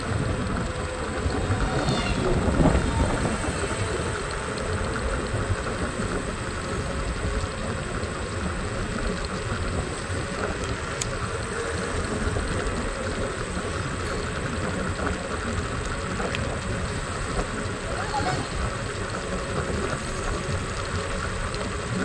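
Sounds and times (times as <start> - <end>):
scooter engine: 0.0 - 11.8.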